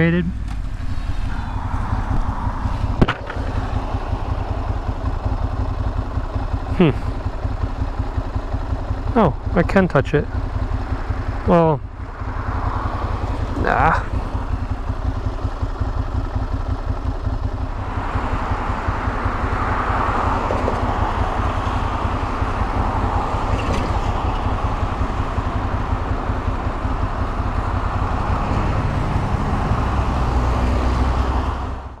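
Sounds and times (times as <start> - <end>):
motorcycle engine running: 0.0 - 32.0
wet road noise: 0.0 - 32.0
wind rushing: 0.6 - 5.0.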